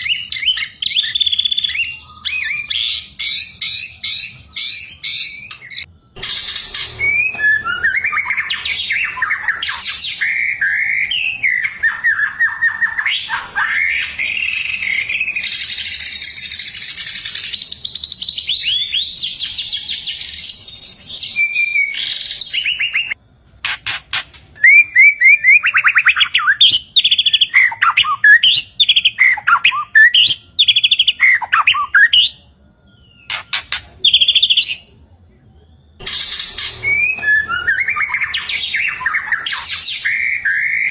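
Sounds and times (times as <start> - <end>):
songbird whistling and trilling: 0.0 - 34.9, 36.0 - 40.9
sharp clicks: 5.4 - 5.9, 23.6 - 24.6, 33.3 - 34.7.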